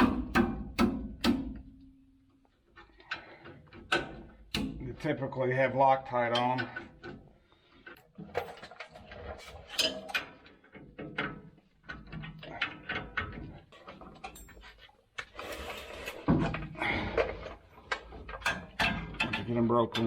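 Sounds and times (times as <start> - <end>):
hand tools clanking on metal: 16.4 - 20.0.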